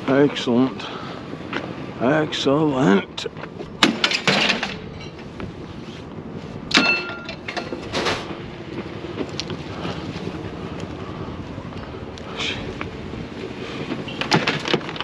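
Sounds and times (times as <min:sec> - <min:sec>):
steady background noise: 0:00.0 - 0:15.0
scrap metal clanking: 0:03.8 - 0:05.3, 0:06.7 - 0:08.4.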